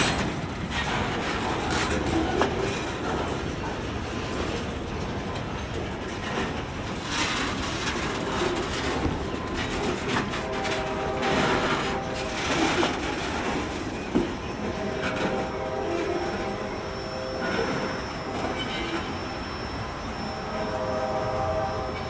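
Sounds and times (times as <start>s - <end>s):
wheels clacking over rail joints: 0.0s - 20.3s
steel wheels rumbling on rail: 0.0s - 22.0s.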